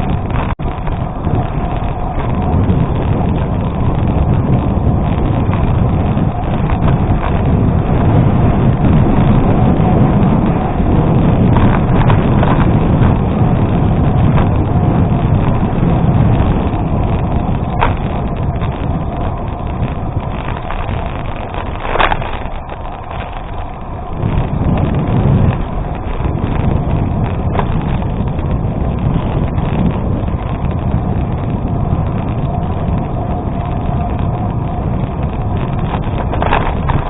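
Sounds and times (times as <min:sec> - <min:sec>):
bicycle tyres rolling on gravel: 0:00.0 - 0:37.0
wind rushing over microphone: 0:00.0 - 0:37.0
clicks and knocks from stones: 0:17.6 - 0:23.8, 0:27.5 - 0:28.4, 0:35.2 - 0:37.0.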